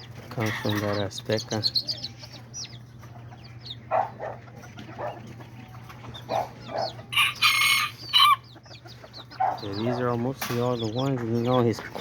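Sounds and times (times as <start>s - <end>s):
chickens clucking: 0.0s - 12.0s
rooster crowing: 7.1s - 8.4s.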